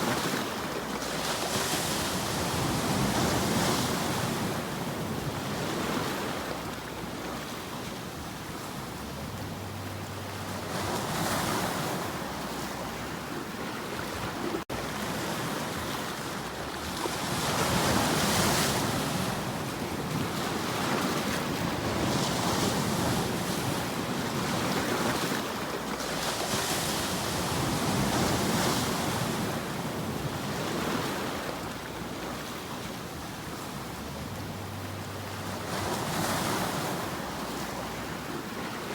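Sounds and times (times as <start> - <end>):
ocean waves washing ashore: 0.0 - 38.9.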